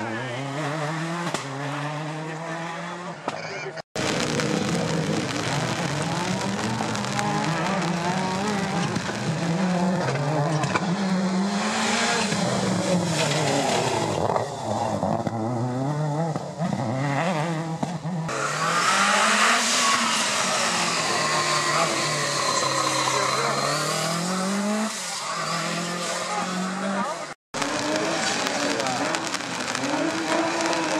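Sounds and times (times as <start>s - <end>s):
rally car engine revving: 0.0s - 30.9s
car accelerating with hiss: 16.1s - 30.9s.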